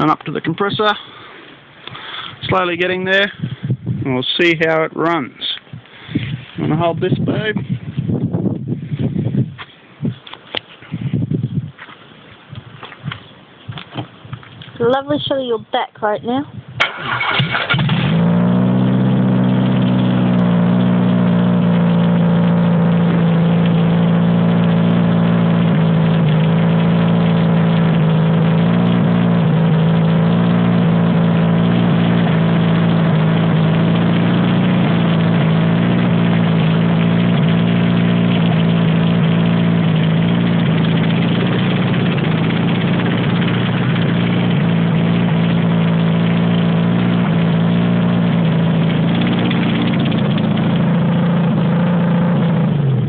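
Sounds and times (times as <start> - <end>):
engine running at fast idle: 16.9 - 53.0.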